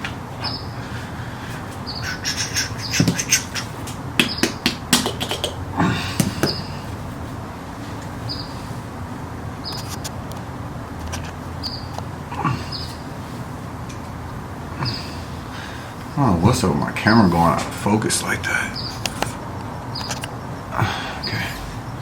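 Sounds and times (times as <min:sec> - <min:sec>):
bird chirping: 0:00.4 - 0:01.1, 0:01.8 - 0:05.6, 0:08.2 - 0:08.6, 0:09.6 - 0:10.1, 0:11.6 - 0:13.2, 0:17.1 - 0:20.6.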